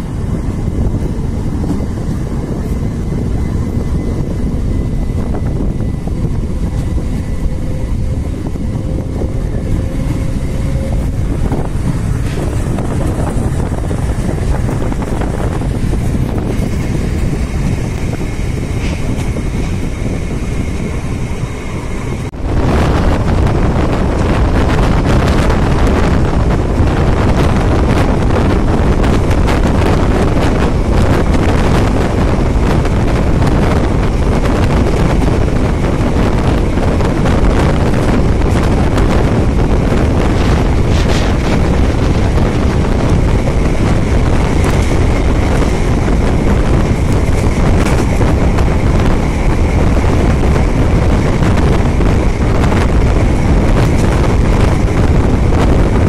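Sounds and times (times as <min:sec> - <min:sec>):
electric train rumbling: 0:00.0 - 0:56.0
wind buffeting microphone: 0:00.0 - 0:56.0.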